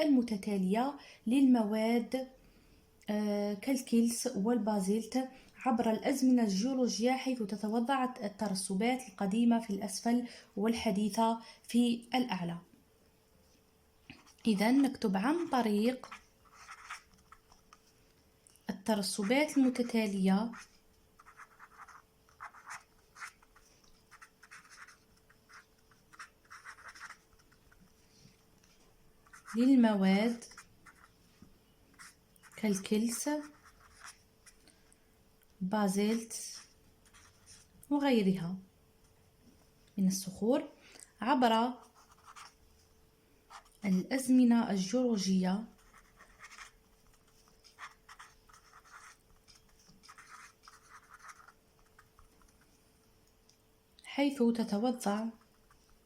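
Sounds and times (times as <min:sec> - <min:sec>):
faint steady hum: 0:00.0 - 0:56.0
pen scratching while writing: 0:14.2 - 0:17.8, 0:19.2 - 0:27.8, 0:29.3 - 0:29.7, 0:30.3 - 0:31.1, 0:32.0 - 0:34.6, 0:42.0 - 0:42.5, 0:45.8 - 0:52.6.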